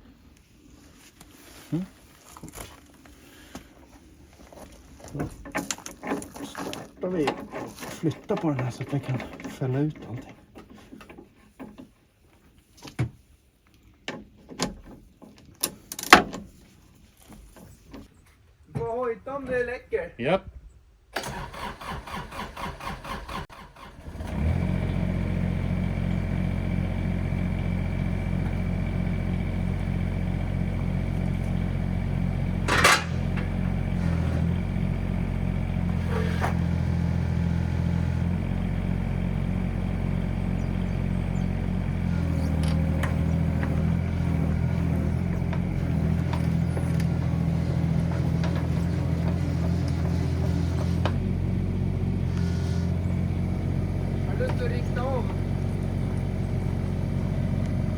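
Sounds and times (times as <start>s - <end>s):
diesel engine starting and running: 21.2s - 57.9s
sharp metal clank: 32.7s - 33.5s.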